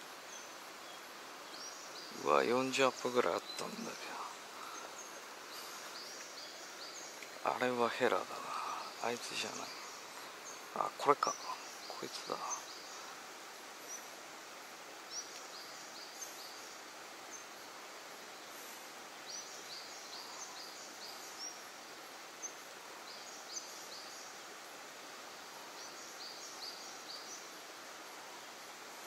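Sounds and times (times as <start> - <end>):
steady background hiss: 0.0 - 29.0
bird chirping: 0.3 - 14.2.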